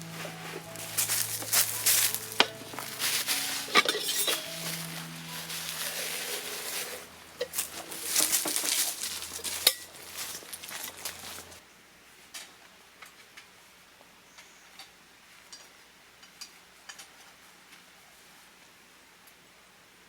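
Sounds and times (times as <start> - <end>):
cookware and utensils clinking: 0.5 - 11.6.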